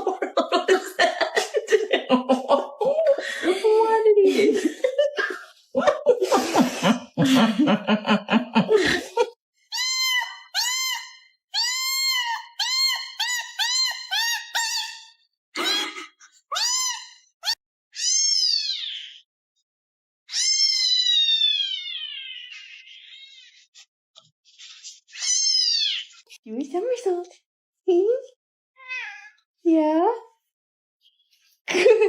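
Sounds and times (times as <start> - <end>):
person laughing: 0.0 - 9.4, 15.6 - 16.2, 31.7 - 32.0
cat meowing: 16.5 - 19.2, 20.3 - 23.5, 25.1 - 26.1, 28.8 - 29.4.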